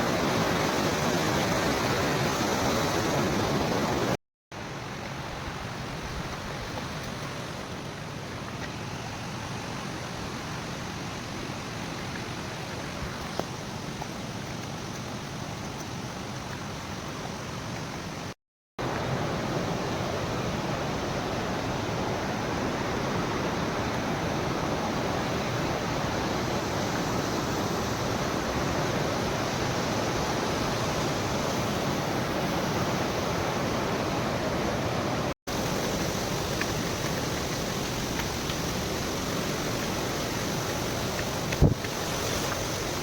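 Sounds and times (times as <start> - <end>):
waterfall roaring: 0.0 - 43.0.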